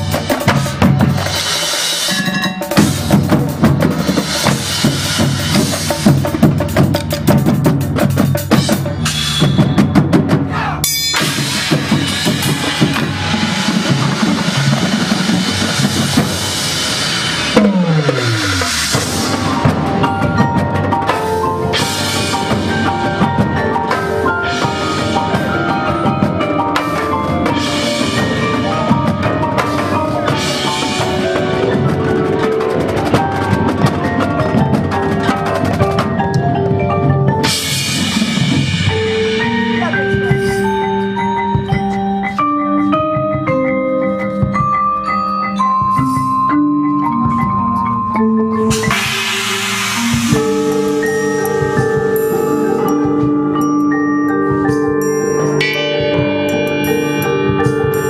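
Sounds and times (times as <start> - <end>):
snare and bass drums: 0.0 - 36.6, 48.7 - 52.3
marching band music: 0.0 - 58.0.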